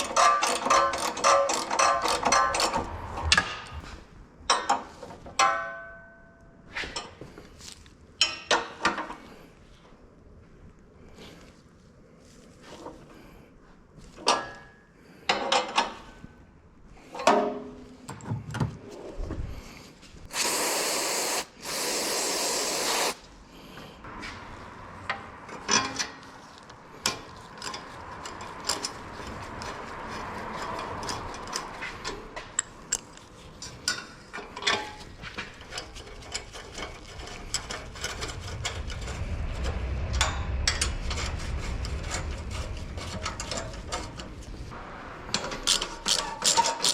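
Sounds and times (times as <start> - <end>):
tools and metal parts knocking: 0.0 - 3.5, 30.6 - 38.7, 45.3 - 46.9
low rumble: 2.5 - 4.4, 36.5 - 46.1
aerosol spray hissing: 20.3 - 23.2.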